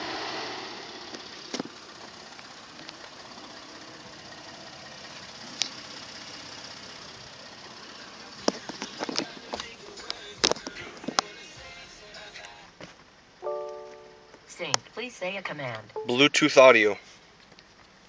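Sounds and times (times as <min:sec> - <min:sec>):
engine idling: 0:00.0 - 0:12.4.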